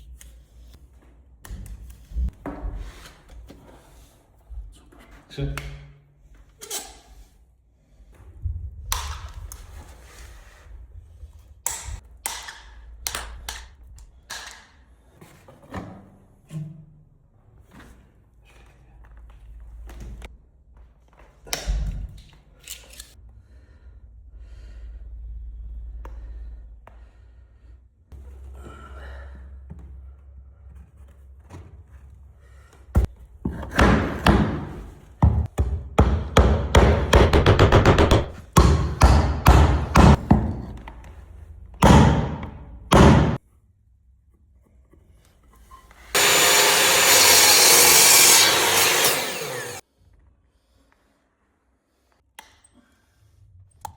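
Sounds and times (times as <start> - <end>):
hammer knocking on wood: 33.0 - 40.7.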